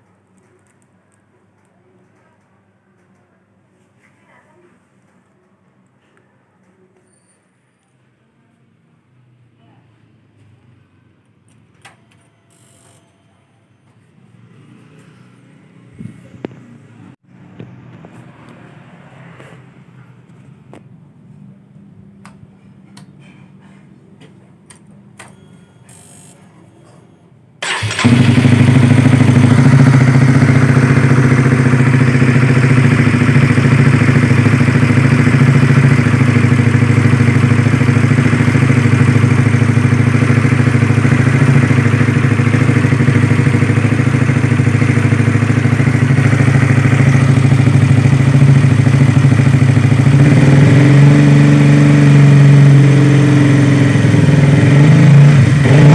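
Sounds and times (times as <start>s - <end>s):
motorcycle engine starting and idling: 27.6s - 55.9s.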